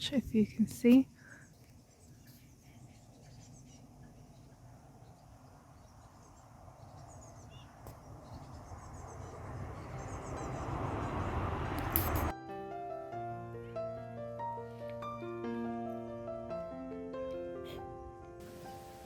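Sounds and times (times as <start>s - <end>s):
fledgling birds chirping: 0.3s - 12.3s
low rushing noise: 6.4s - 12.3s.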